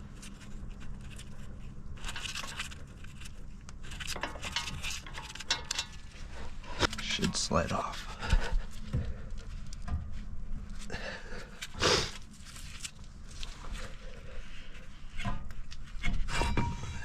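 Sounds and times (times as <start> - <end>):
light metal knocks and scrapes: 2.0 - 7.4, 13.6 - 17.0.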